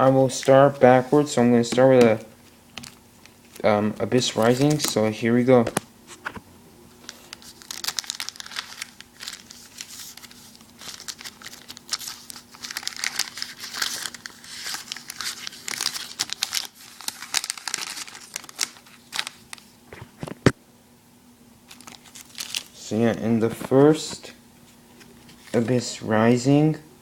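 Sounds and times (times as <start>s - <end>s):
foil wrapper tearing and crinkling: 7.0s - 19.7s, 21.7s - 22.8s.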